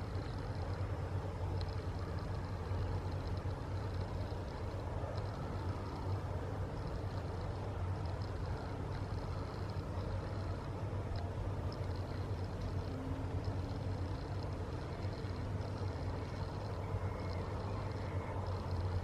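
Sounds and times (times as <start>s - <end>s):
distant road traffic rumble: 0.0s - 19.0s
faint high-pitched chirps: 11.6s - 19.0s.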